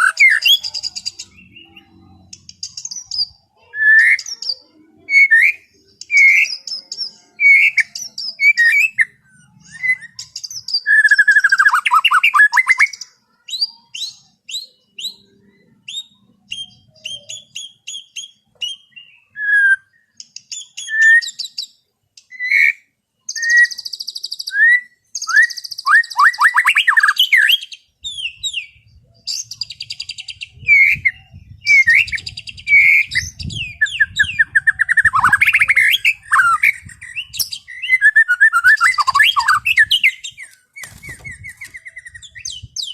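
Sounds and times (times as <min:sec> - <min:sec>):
bird singing whistled song: 0:00.0 - 0:42.9
buzzy high bird trills: 0:31.2 - 0:42.9.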